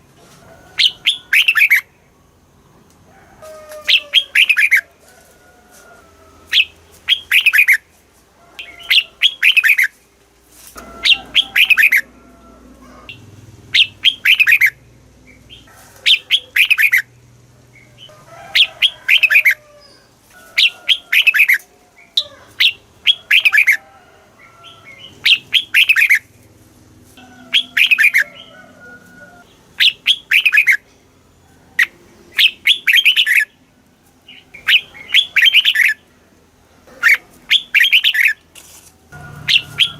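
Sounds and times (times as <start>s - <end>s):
bird singing warbled phrases: 0.8s - 2.1s, 3.9s - 4.8s, 6.5s - 7.8s, 8.6s - 10.0s, 11.0s - 12.1s, 13.1s - 23.8s, 24.6s - 26.3s, 27.5s - 28.5s, 29.5s - 30.9s, 31.8s - 33.6s, 34.3s - 36.2s, 36.9s - 38.4s, 39.4s - 39.9s.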